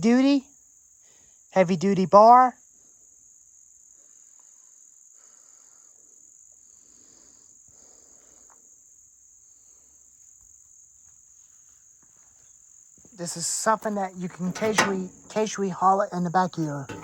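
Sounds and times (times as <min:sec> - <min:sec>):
high-pitched insect chorus: 0:02.6 - 0:13.1
light knocks: 0:13.8 - 0:15.6.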